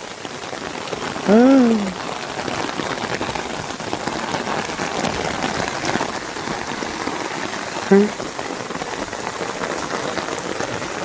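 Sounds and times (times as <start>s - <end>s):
steady rain: 0.0s - 11.0s
man's short voiced sound: 1.2s - 2.0s, 7.9s - 8.2s.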